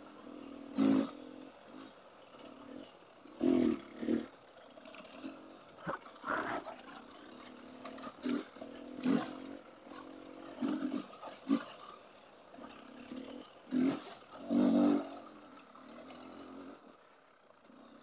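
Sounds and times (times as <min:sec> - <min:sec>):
motorcycle engine revving: 0:00.0 - 0:18.0
trail noise: 0:01.4 - 0:14.5.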